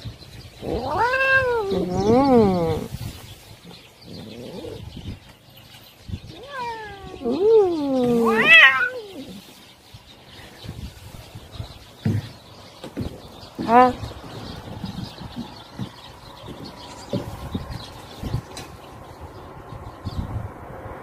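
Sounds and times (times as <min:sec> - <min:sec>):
cat meowing: 0:00.6 - 0:02.9, 0:06.3 - 0:09.4.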